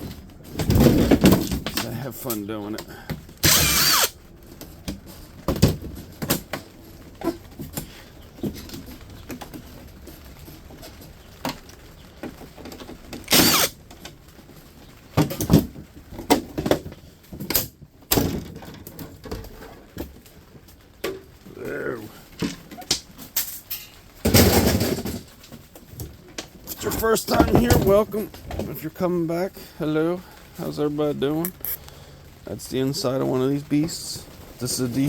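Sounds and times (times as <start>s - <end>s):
loud rattling bursts: 13.1s - 13.8s.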